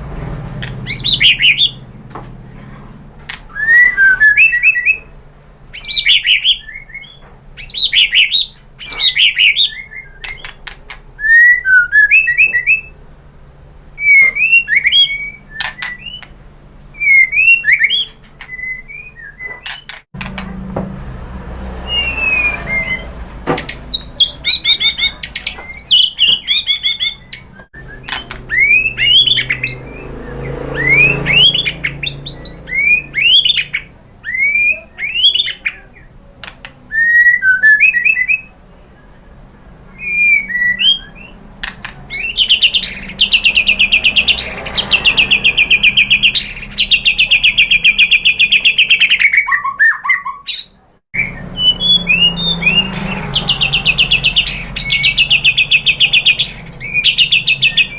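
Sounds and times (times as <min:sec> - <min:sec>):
bird whistling song: 0:00.8 - 0:01.9, 0:03.3 - 0:13.0, 0:14.0 - 0:20.0, 0:21.7 - 0:36.1, 0:36.8 - 0:38.6, 0:39.9 - 0:41.4, 0:42.1 - 0:57.9
fast bird trill: 0:00.8 - 0:01.9, 0:03.5 - 0:05.1, 0:05.7 - 0:13.0, 0:14.0 - 0:16.3, 0:17.0 - 0:20.0, 0:21.8 - 0:35.9, 0:42.1 - 0:57.9
bird sharp clicks: 0:10.2 - 0:11.0, 0:15.6 - 0:16.4.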